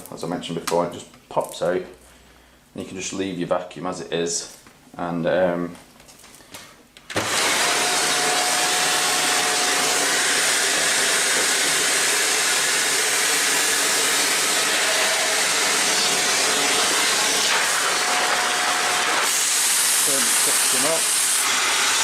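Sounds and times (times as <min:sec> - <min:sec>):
vacuum cleaner running: 0:07.1 - 0:22.0.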